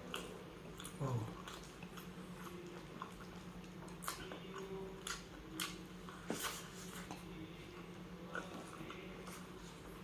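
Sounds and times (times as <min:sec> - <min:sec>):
chewing and mouth smacks: 0:00.0 - 0:07.3
faint steady hum: 0:00.0 - 0:10.0.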